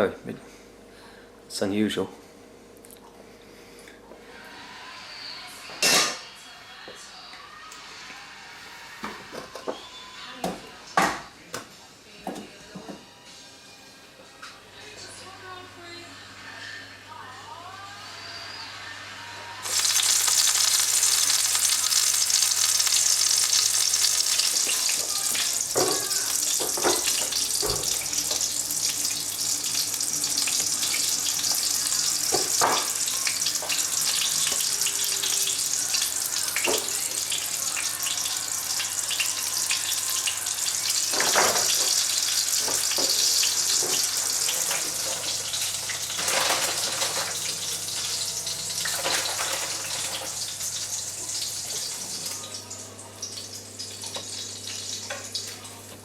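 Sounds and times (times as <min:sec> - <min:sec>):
running water hissing: 0:19.6 - 0:52.6.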